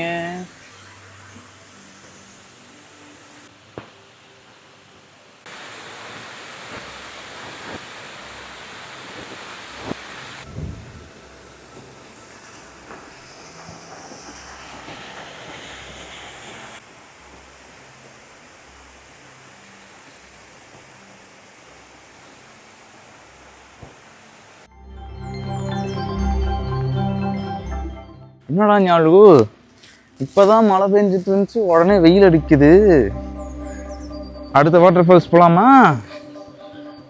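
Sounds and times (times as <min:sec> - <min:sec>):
waterfall rushing: 0:05.5 - 0:24.7.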